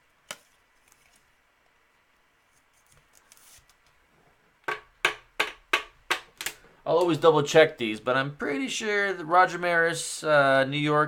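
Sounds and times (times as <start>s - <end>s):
trading cards rustling: 2.5s - 3.9s.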